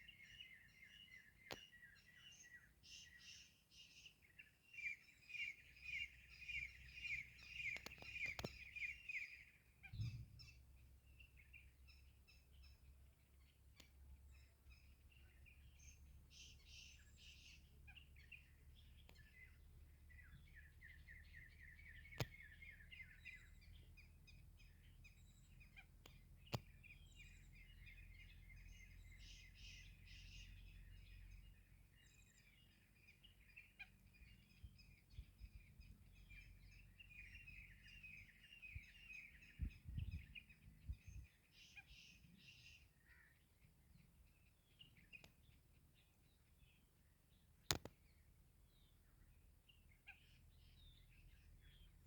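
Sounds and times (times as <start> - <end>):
faint bird chirping: 0.0 - 52.0
sharp clicks: 7.6 - 8.6, 47.6 - 48.0.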